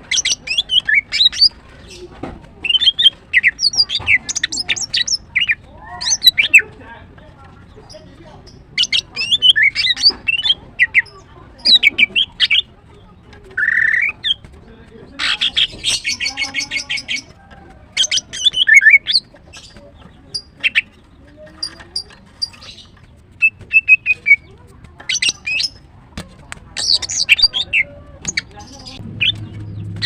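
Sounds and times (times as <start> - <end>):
bird chirping and clicking: 0.0 - 30.0
bird rattling trill: 15.2 - 25.9.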